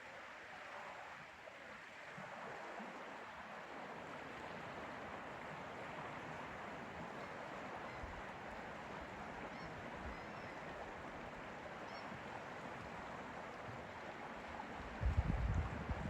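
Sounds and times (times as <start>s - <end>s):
wind rumbling on microphone: 14.8s - 16.0s.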